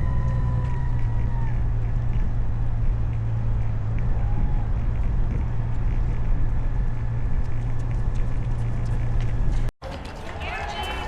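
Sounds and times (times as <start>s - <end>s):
motorcycle engine running: 0.0s - 9.7s
wind noise: 0.0s - 11.0s.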